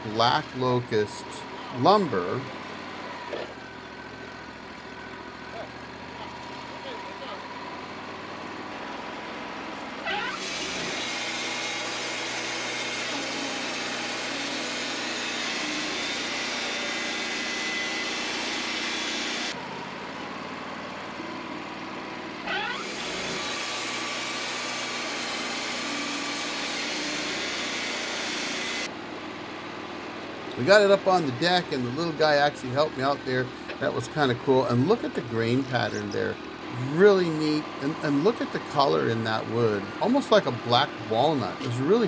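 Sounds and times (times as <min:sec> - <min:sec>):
engine-driven machinery running: 0:30.5 - 0:42.0.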